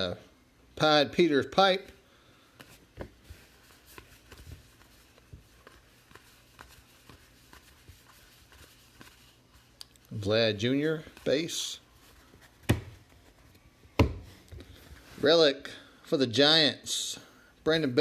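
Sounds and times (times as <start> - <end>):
trading cards rustling and flicking: 2.5 - 15.1.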